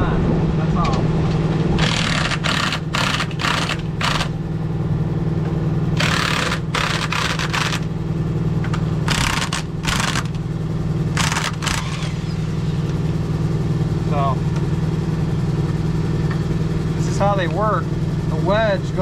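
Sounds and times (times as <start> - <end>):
engine hum: 0.0 - 19.0
impact wrench bursts: 1.8 - 4.4, 6.0 - 8.0, 9.0 - 10.4, 11.1 - 12.9.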